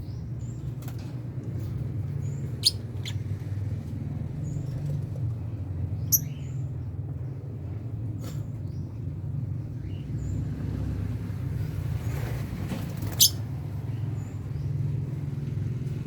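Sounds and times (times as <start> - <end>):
low background rumble: 0.0 - 16.0
lovebirds chirping: 2.2 - 3.4, 6.0 - 6.6, 13.0 - 13.4.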